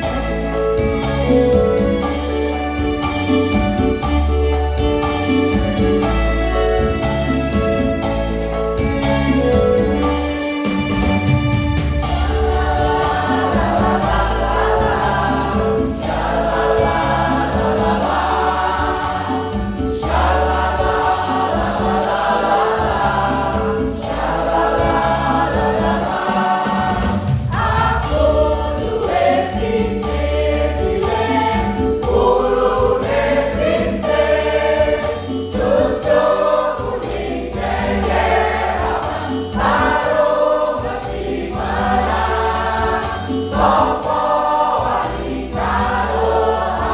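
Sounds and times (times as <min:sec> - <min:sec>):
choir singing: 0:00.0 - 0:46.9
pulsing beat and bass: 0:11.0 - 0:46.9.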